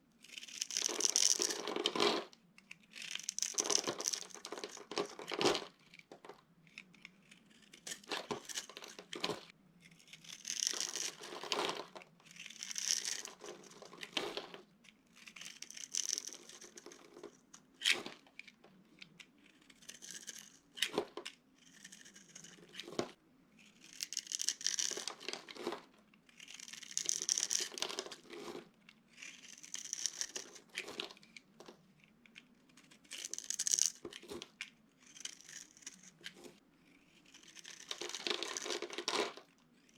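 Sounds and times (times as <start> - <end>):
brittle material crunching: 3.0 - 5.7.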